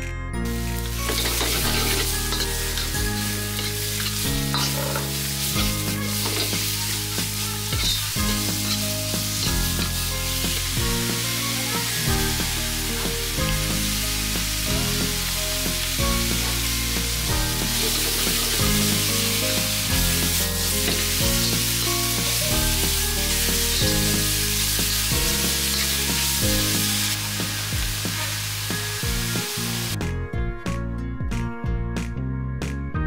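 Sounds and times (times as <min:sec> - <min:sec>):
background music with bass line: 0:00.0 - 0:33.0
meat sizzling in a wok: 0:00.5 - 0:30.0
metal ladle stirring: 0:01.0 - 0:05.2.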